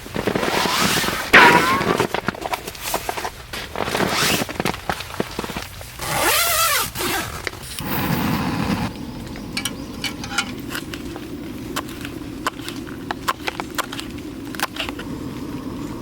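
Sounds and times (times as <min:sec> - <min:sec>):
rain on tent: 0:00.0 - 0:16.0
tent zipper pulled open: 0:00.2 - 0:02.3, 0:03.7 - 0:04.8, 0:06.0 - 0:08.9.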